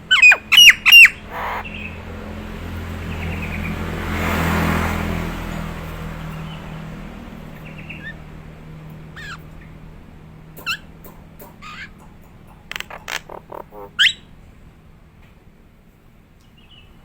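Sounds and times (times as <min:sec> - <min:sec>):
myna whistled calls: 0:00.0 - 0:02.0, 0:12.7 - 0:14.3
quick run of sharp bird notes: 0:00.1 - 0:02.0.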